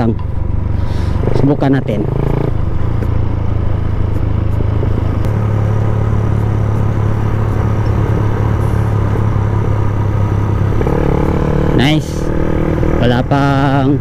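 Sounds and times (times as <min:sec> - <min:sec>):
motorcycle engine cruising: 0:00.0 - 0:14.0
road and wind noise: 0:00.0 - 0:14.0.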